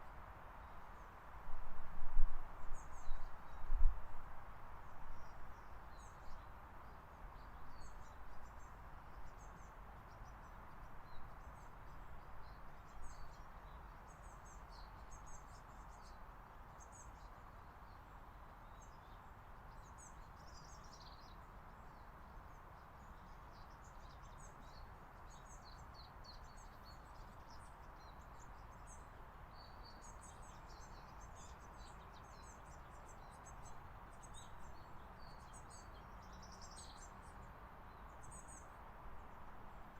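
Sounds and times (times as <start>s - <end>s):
songbirds chirping: 0.0s - 39.9s
steady background hiss: 0.0s - 39.9s.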